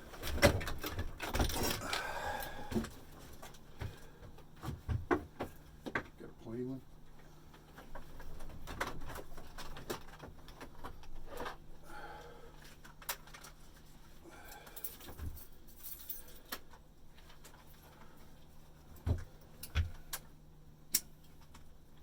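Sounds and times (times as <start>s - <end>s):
hand tools clinking and rattling: 14.4s - 16.6s.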